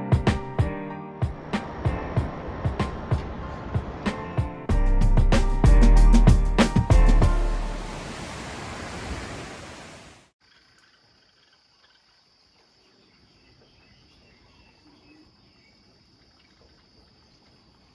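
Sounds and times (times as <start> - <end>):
loud rushing noise: 6.7 - 10.2
crickets trilling: 10.4 - 17.9
faint insect chirps: 10.4 - 17.9.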